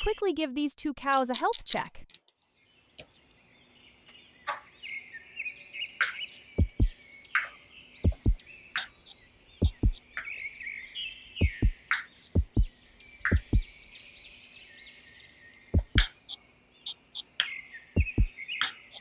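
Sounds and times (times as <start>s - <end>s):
birds chirping: 1.1s - 19.0s
soft background beat: 6.0s - 7.5s, 8.1s - 8.9s, 9.6s - 10.1s, 11.4s - 12.7s, 13.3s - 13.7s, 15.8s - 16.1s, 18.0s - 18.3s
low kick drum thumps: 6.6s - 6.9s, 8.1s - 8.4s, 9.6s - 10.0s, 11.4s - 11.8s, 12.4s - 12.7s, 13.3s - 13.7s, 15.8s - 16.1s, 18.0s - 18.3s
sharp percussive hits: 13.3s - 13.6s, 15.8s - 16.1s.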